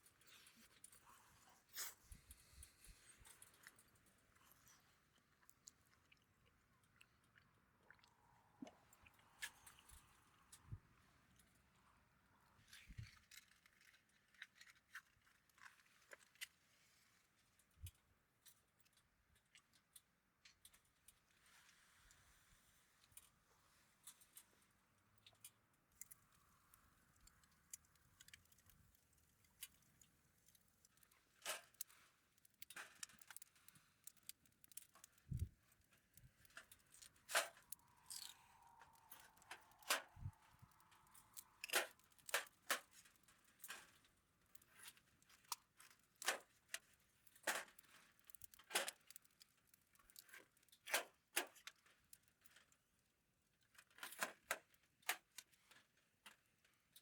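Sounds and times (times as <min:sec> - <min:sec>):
campfire crackling: 0:26.0 - 0:43.1.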